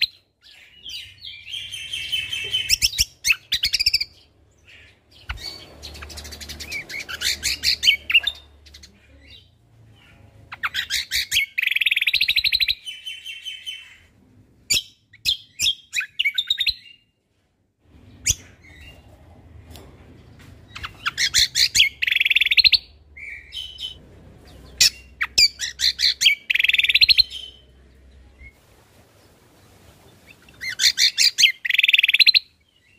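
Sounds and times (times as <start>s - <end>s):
songbird rapid high chirping: 0.0s - 14.0s, 20.7s - 28.6s, 30.3s - 32.9s.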